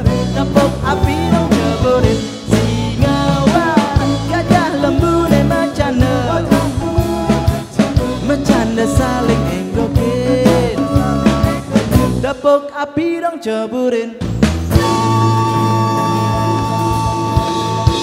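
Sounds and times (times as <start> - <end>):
drum kit beat: 0.0 - 12.4, 14.2 - 18.0
rock band playing: 0.0 - 12.4, 14.2 - 18.0.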